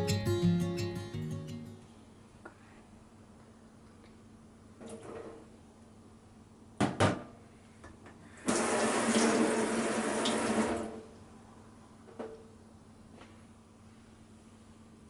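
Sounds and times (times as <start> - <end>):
water running: 8.5 - 10.7.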